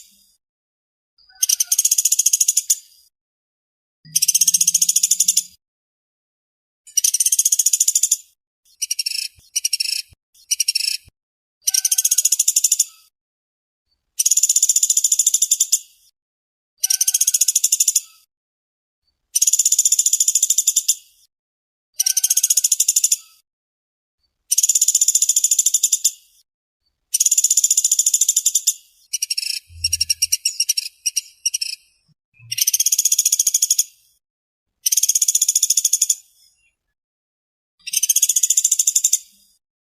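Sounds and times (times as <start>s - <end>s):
woodpecker rattling trills: 1.3s - 2.8s, 4.1s - 5.6s, 24.6s - 26.1s, 27.2s - 31.8s.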